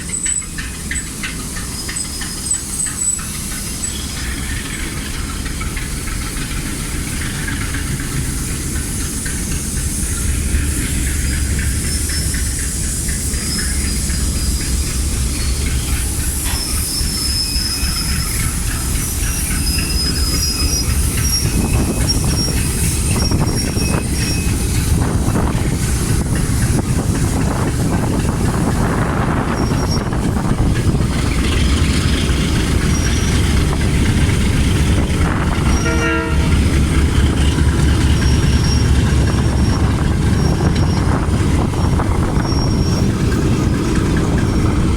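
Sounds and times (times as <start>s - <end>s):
steel wheels squealing: 0.0s - 44.9s
train rumbling on rails: 0.0s - 44.9s
train horn toot: 35.3s - 36.8s.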